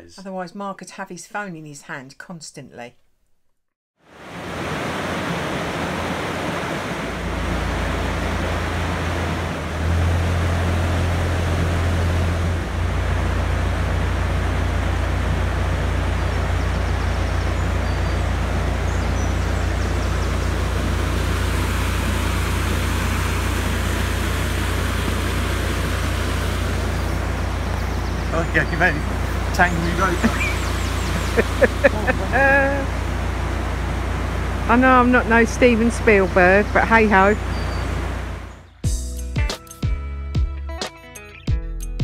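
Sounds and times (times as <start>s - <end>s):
steady rushing noise: 4.1s - 11.6s
boat diesel engine hum: 4.1s - 38.8s.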